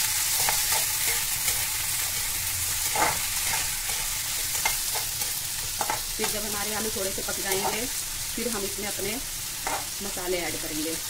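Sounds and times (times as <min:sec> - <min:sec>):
metal spatula scraping a pan: 0:00.0 - 0:06.4, 0:09.6 - 0:10.0
vegetables sizzling in oil: 0:00.0 - 0:11.0.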